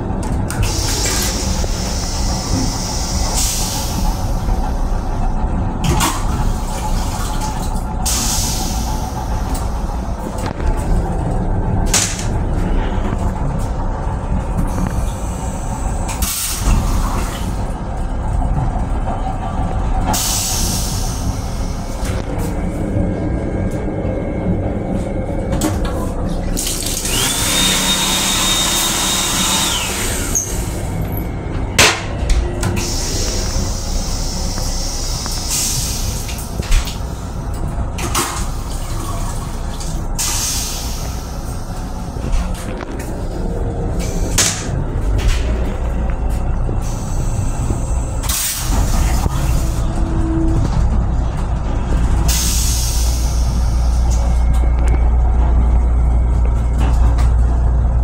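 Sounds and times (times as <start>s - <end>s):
railcar low rumble: 0.0s - 58.0s
hiss: 20.2s - 22.0s, 52.3s - 54.2s.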